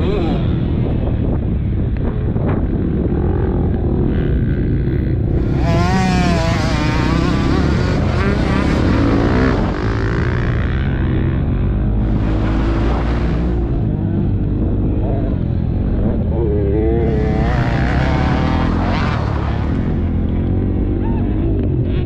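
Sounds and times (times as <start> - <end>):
motocross bike engine revving: 3.3 - 22.0.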